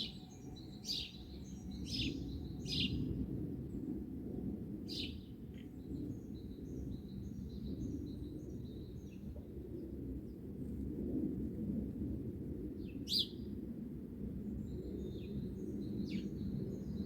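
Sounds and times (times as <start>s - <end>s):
songbirds chirping: 0.0s - 4.0s, 14.6s - 17.0s.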